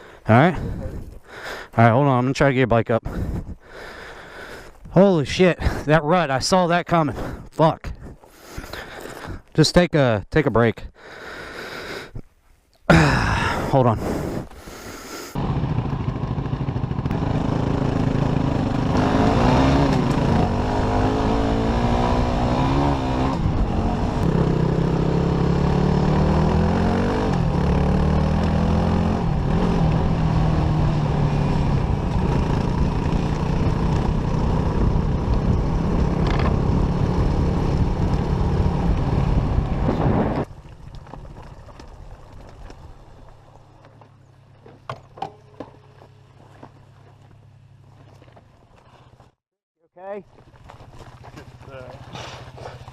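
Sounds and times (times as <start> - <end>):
dirt bike engine revving: 15.3 - 40.5.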